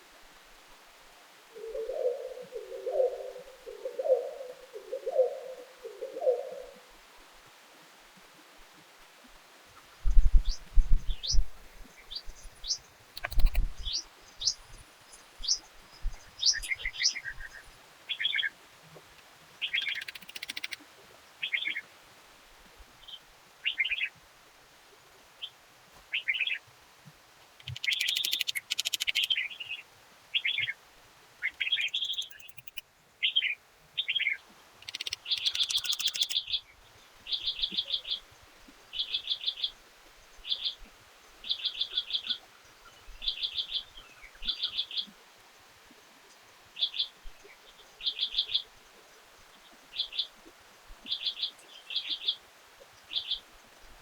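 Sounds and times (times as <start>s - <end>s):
bird rattling call: 13.2s - 14.0s, 19.7s - 20.8s, 27.6s - 29.5s, 31.6s - 32.8s, 34.8s - 36.4s
birds whistling and trilling: 15.4s - 17.7s, 27.7s - 29.4s, 31.6s - 32.8s, 34.8s - 36.4s.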